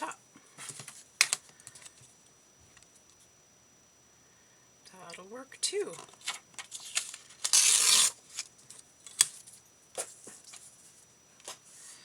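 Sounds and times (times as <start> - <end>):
paper ripping: 6.8 - 8.2.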